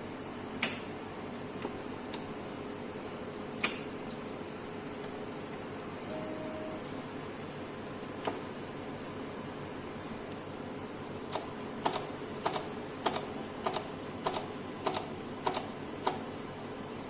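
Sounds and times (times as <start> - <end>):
keypad buttons clicking: 3.6 - 4.2.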